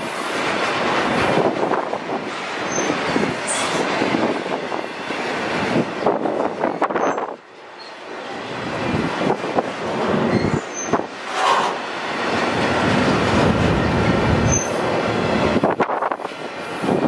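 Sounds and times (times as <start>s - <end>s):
freight train wheels rumbling: 0.0s - 17.0s
high wheel squeals: 2.7s - 3.7s, 10.2s - 11.8s, 14.5s - 14.8s.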